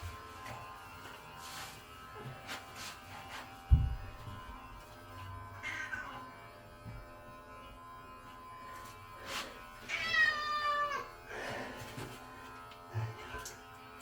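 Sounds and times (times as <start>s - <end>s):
electric pet clippers humming: 0.0s - 14.0s
cat meowing: 9.9s - 11.1s.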